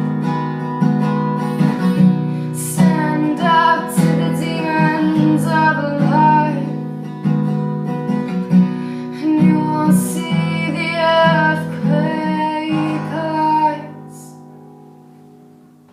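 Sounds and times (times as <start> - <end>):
acoustic guitar strummed: 0.0 - 15.9
woman singing: 2.4 - 6.9, 9.1 - 14.4.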